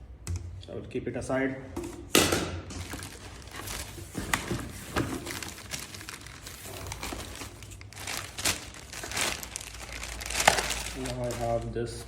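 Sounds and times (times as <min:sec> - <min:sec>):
packaging rustling and crinkling: 0:02.7 - 0:12.0.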